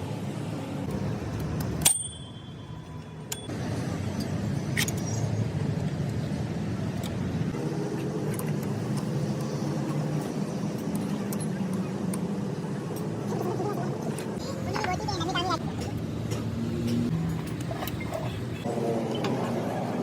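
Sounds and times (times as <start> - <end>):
sharp metallic clink: 1.7 - 3.6.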